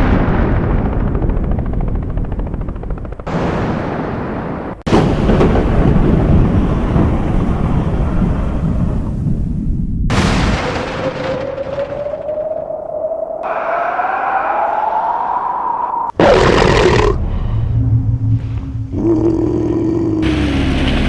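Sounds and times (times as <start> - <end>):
explosion rumbling and booms: 0.0 - 13.4.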